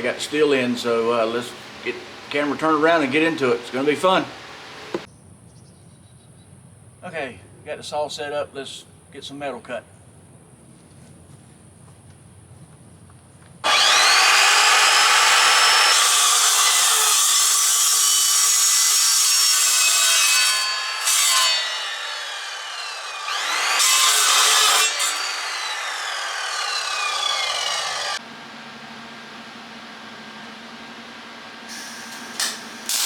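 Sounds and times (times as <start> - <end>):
power saw cutting steel: 0.0 - 5.1, 13.6 - 28.2, 31.6 - 33.0.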